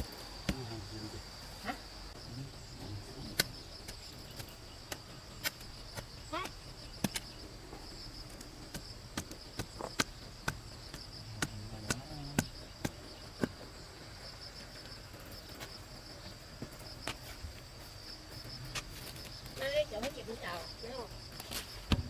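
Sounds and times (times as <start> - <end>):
insects droning: 0.0 - 22.0
sharp irregular knocks: 3.4 - 7.3, 8.3 - 13.7.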